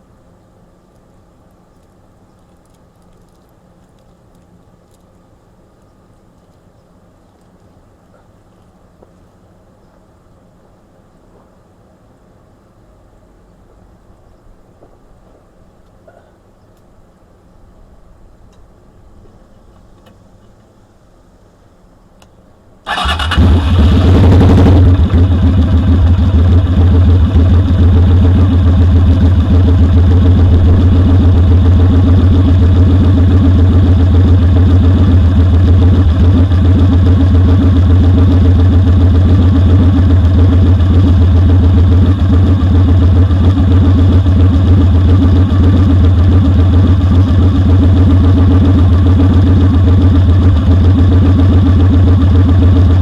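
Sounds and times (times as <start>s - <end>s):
motorcycle engine idling: 22.9s - 53.0s.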